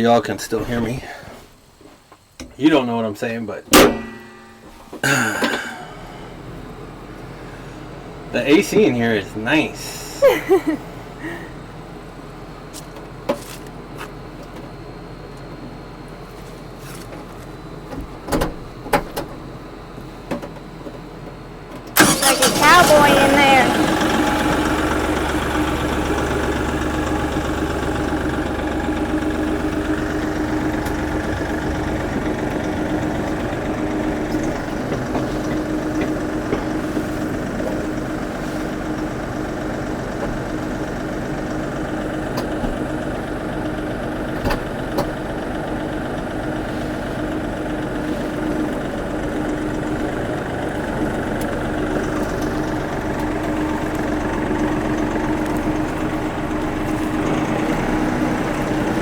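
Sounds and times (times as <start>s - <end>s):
tractor engine running: 4.7s - 59.0s.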